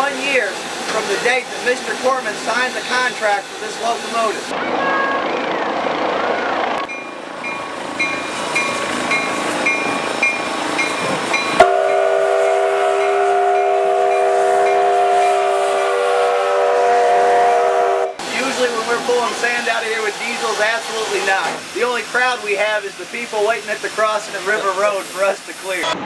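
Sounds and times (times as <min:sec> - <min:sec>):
rumble of moving train: 0:00.0 - 0:26.0
steam locomotive whistle: 0:11.6 - 0:18.4.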